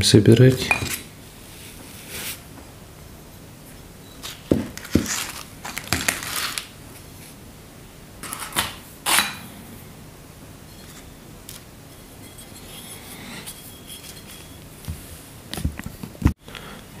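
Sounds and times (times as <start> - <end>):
rustling: 4.2 - 6.7.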